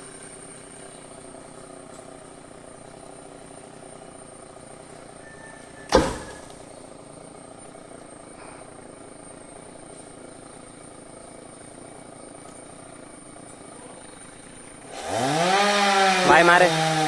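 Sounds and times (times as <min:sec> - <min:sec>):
chainsaw idling: 0:00.0 - 0:17.0
loud thud: 0:05.9 - 0:06.6.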